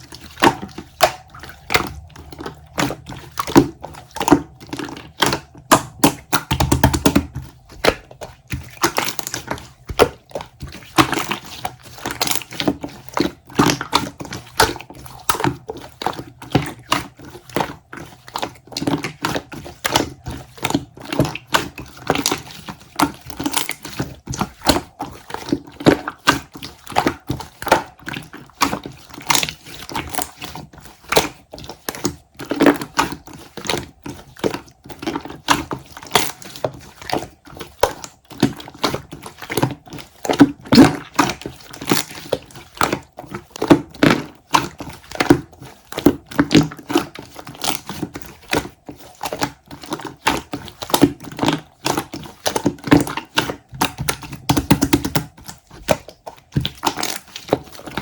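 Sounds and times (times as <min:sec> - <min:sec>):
crinkling: 0:26.6 - 0:58.0.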